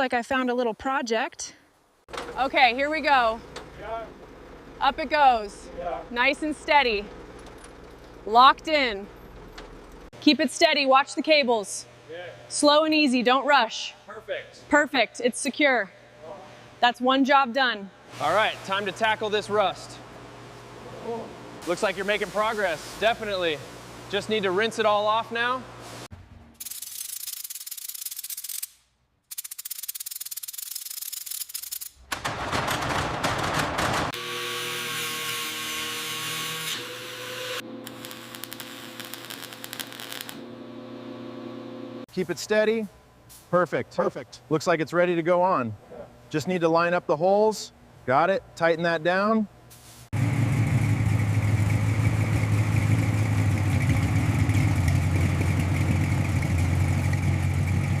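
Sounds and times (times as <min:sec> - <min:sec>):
small motor whine: 0:34.2 - 0:42.0
engine idling: 0:50.2 - 0:58.0.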